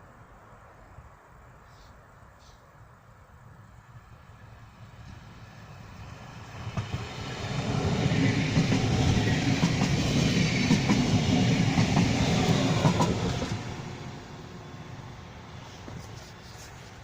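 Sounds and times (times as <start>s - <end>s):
train wheels clattering over rails: 6.5s - 13.7s.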